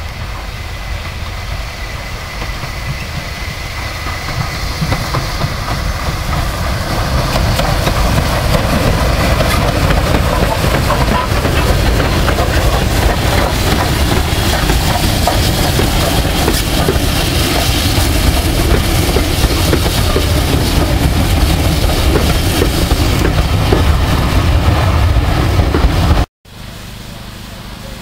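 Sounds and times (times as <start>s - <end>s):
steam train rushing: 0.0s - 28.0s
wheels clicking over rail joints: 2.4s - 24.0s.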